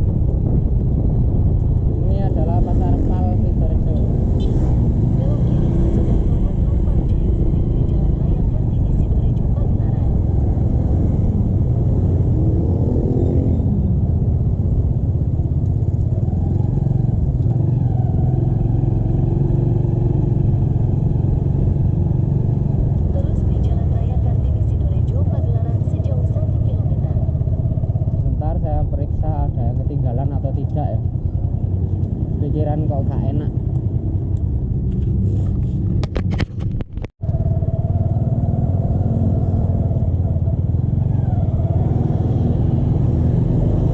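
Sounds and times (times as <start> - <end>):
motorcycle engine running: 0.0 - 43.9
wind rumble on microphone: 0.0 - 43.9
sharp clicks and knocks: 34.4 - 37.2.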